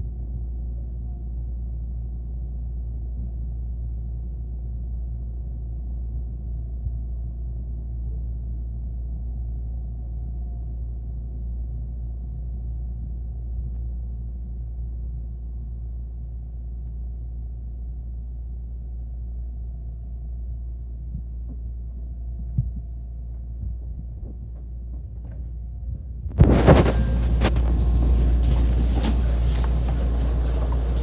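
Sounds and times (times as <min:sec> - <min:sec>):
train interior rumble: 0:26.4 - 0:31.0.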